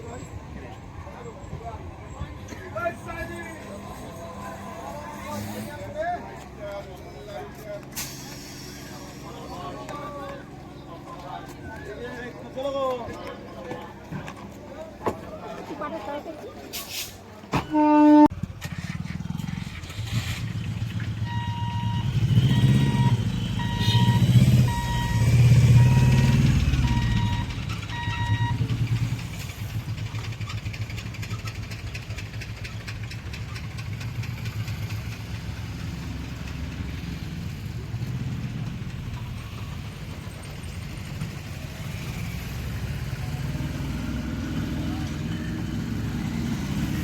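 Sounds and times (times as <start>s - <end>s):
vehicle engines running: 0.0s - 17.5s, 18.3s - 47.0s
electronic beeper: 21.3s - 28.6s.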